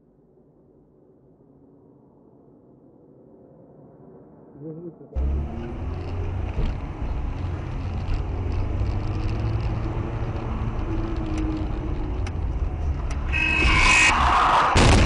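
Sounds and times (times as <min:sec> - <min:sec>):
car engine and road noise: 0:05.2 - 0:15.0.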